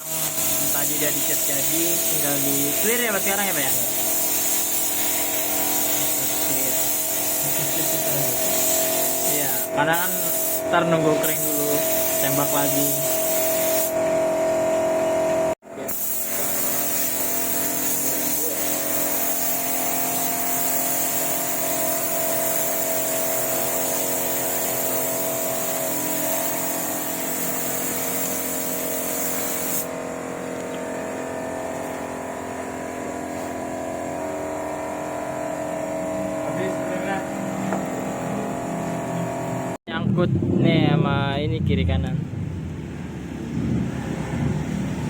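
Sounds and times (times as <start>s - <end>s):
spray gun hissing: 0.0s - 14.0s, 15.9s - 30.0s
machine hum: 29.8s - 45.0s.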